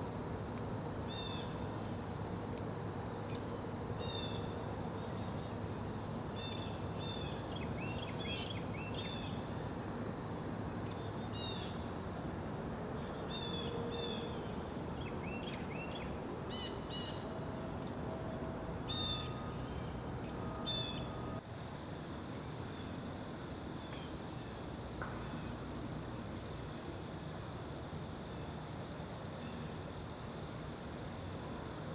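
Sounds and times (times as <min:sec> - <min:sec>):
insects trilling: 0:00.0 - 0:31.9.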